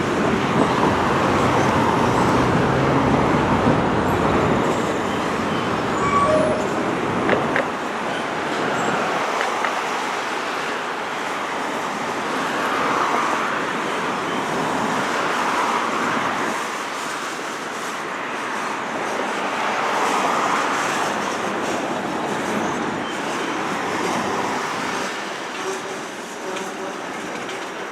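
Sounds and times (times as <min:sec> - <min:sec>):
train rolling past: 0:00.0 - 0:15.8.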